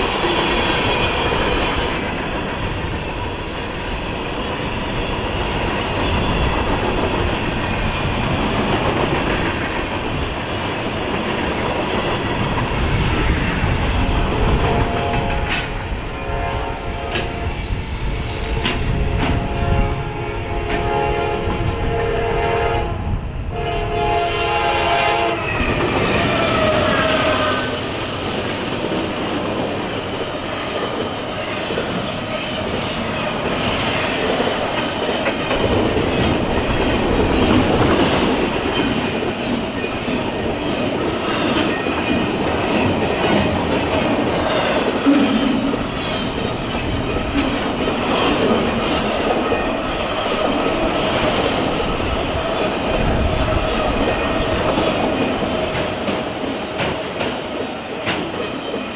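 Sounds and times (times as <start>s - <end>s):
locomotive air horn: 14.0s - 17.6s, 19.2s - 25.6s.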